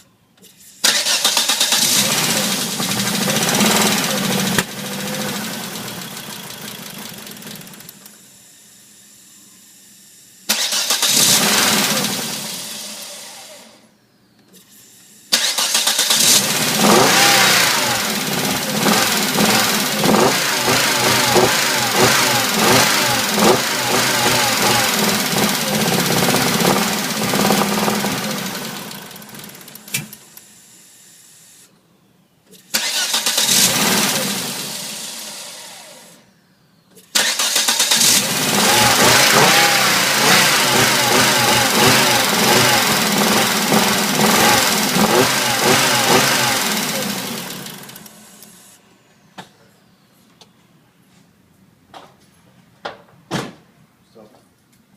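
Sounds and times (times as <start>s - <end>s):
car engine starting: 0.6s - 8.1s, 10.5s - 13.8s, 15.3s - 30.3s, 32.6s - 36.2s, 37.0s - 48.7s.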